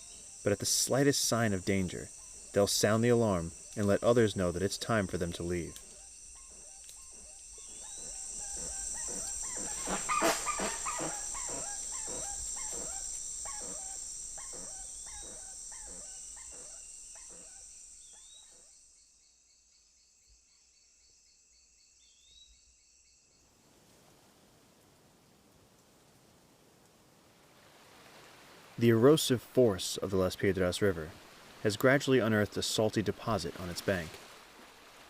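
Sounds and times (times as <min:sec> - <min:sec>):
soft hiss: 0:00.0 - 0:18.6, 0:23.5 - 0:35.0
high insect buzz: 0:00.0 - 0:23.6
bird alarm calls yelping: 0:05.7 - 0:18.5.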